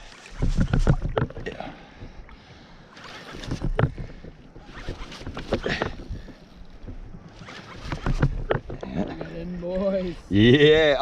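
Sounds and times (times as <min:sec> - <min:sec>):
water sloshing against kayak: 0:00.0 - 0:10.4.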